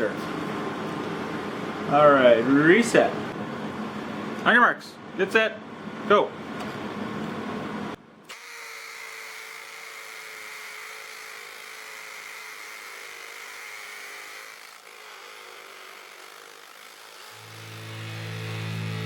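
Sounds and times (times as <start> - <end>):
hammer drill motor whine: 8.3 - 19.0.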